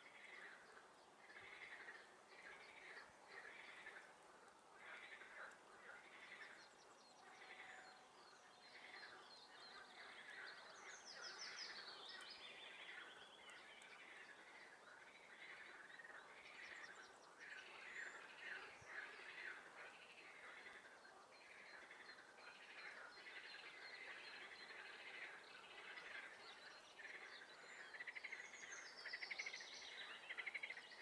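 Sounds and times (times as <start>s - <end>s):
frogs croaking: 27.0s - 28.4s.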